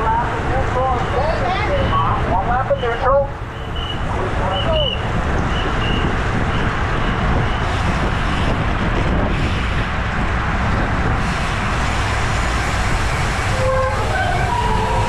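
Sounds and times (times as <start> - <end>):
bicycle road noise: 0.0 - 15.0
wind buffeting microphone: 3.3 - 15.0.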